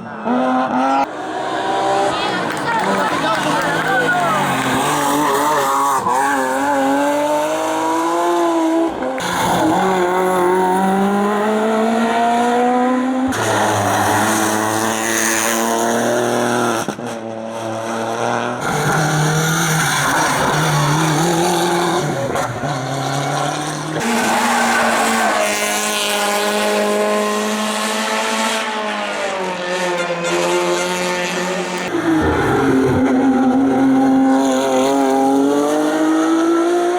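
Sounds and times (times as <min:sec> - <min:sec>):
race car engines revving: 0:00.0 - 0:36.9
tyres squealing: 0:02.0 - 0:06.9.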